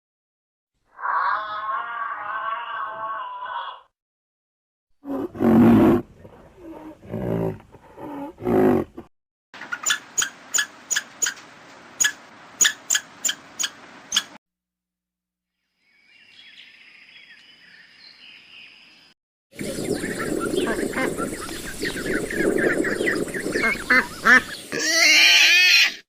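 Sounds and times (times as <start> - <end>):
large animal growling and roaring: 5.0 - 9.1.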